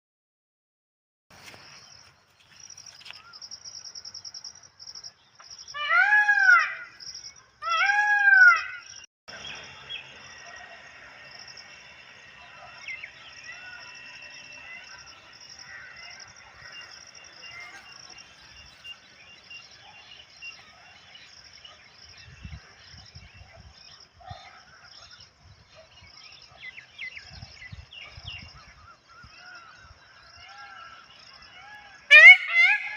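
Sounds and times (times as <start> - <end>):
insects trilling: 1.4 - 22.2
peacock wailing calls: 5.8 - 7.0, 7.6 - 11.3, 11.9 - 18.2, 30.4 - 32.9.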